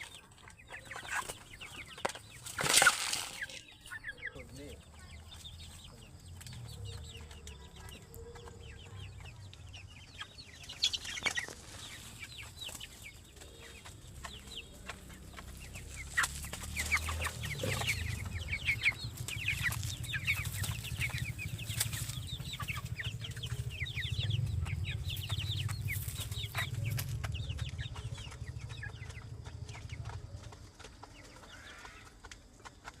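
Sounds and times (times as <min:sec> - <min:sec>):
chickens clucking and peeping: 0:00.0 - 0:33.0
low rumble: 0:14.2 - 0:30.4.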